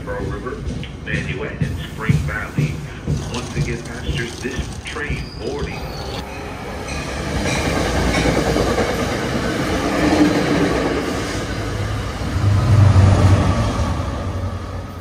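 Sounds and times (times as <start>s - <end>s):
train wheels clattering on rails: 0.0s - 6.0s, 6.8s - 11.3s
locomotive engine running: 1.6s - 5.6s.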